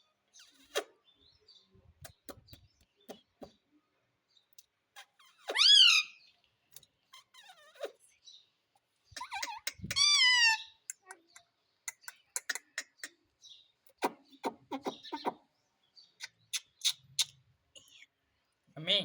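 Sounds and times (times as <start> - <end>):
parrot clicks and chirps: 9.2 - 13.2, 16.2 - 17.4.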